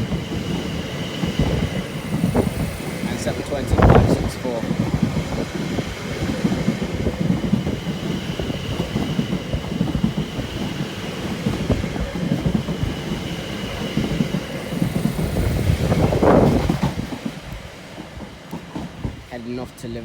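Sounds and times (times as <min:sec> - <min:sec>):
train wheels rumbling on rail: 0:00.0 - 0:20.0
faint high whine: 0:01.2 - 0:04.8.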